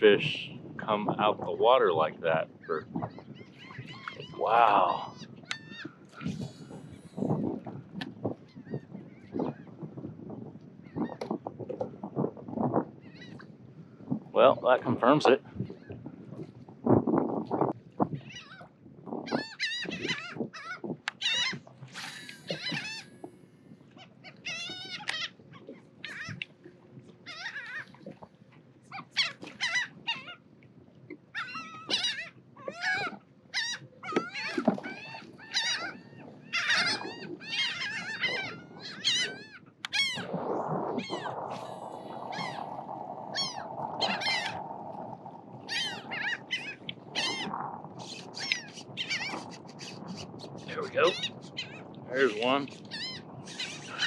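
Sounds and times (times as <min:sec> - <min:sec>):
flock of birds calling: 0:21.2 - 0:23.1, 0:41.0 - 0:44.6, 0:45.7 - 0:51.9, 0:52.7 - 0:54.0
steady rushing noise: 0:40.2 - 0:54.0.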